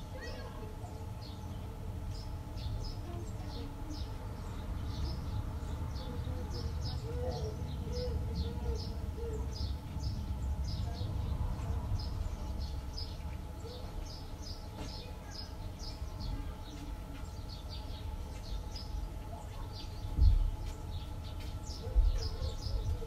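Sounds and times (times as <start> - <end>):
small birds chirping: 0.0 - 23.0
steady low rumble: 1.2 - 14.8.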